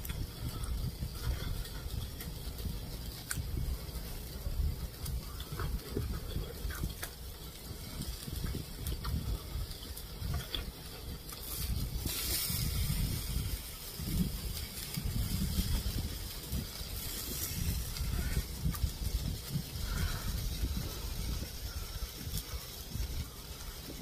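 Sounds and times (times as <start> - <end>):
person chewing food: 5.3 - 7.1, 8.4 - 11.5.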